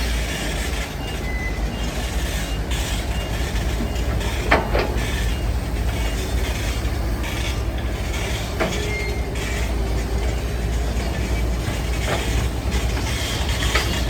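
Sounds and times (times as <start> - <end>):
heavy diesel machinery rumbling: 0.0 - 14.0
faint squeal: 8.7 - 9.6.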